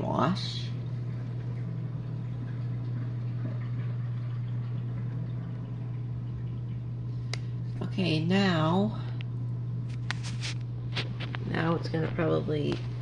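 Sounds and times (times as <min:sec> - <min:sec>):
drain pump humming: 0:00.0 - 0:13.0.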